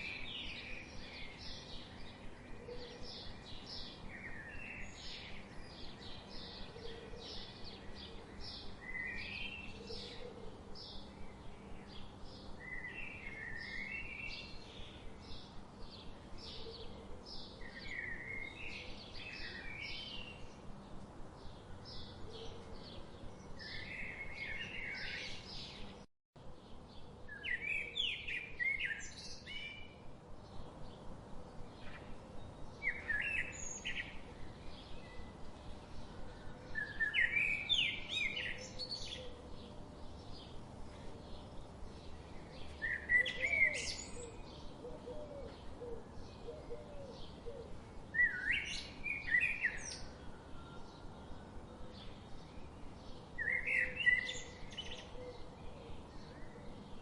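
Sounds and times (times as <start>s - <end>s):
songbirds chirping and singing: 0.0s - 57.0s.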